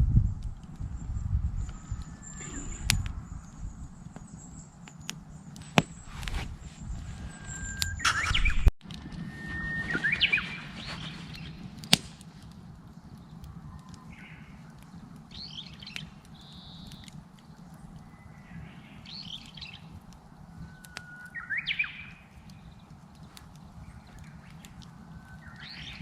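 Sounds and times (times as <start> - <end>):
campfire crackling pops: 0.0 - 26.0
bird singing whistle and warble: 0.8 - 11.8, 12.9 - 26.0
short bird calls: 5.6 - 8.7, 9.3 - 11.8.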